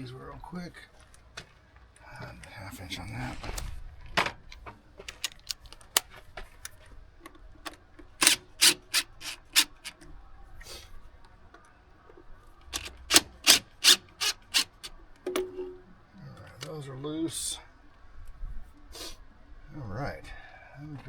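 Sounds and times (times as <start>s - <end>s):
ratchet wrench ratcheting: 8.2s - 10.0s, 12.8s - 14.9s.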